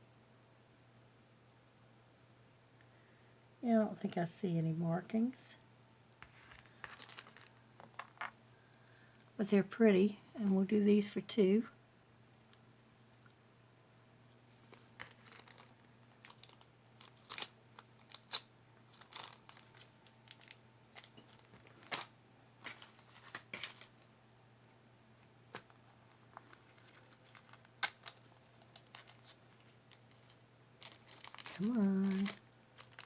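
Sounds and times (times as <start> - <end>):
low steady hum: 0.0 - 33.0
crinkling rustles: 6.2 - 8.4, 14.4 - 24.1, 25.2 - 33.0.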